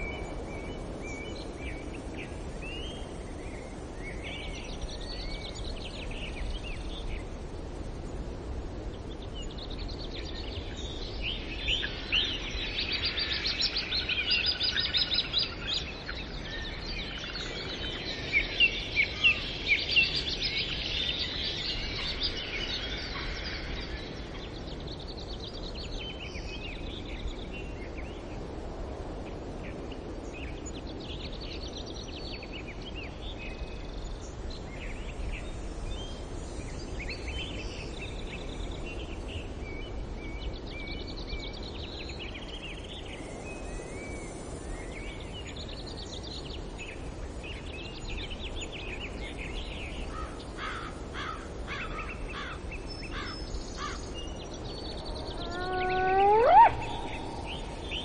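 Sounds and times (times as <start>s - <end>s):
steady background hiss: 0.0s - 58.0s
birds chirping: 51.9s - 58.0s.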